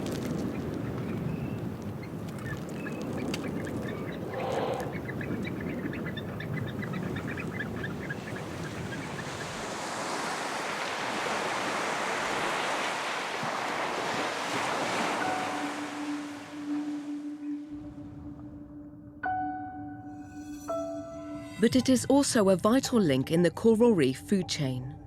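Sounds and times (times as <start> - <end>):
surf washing ashore: 0.0 - 17.9
short high bird calls: 3.9 - 6.2
low steady musical tone: 15.0 - 25.0.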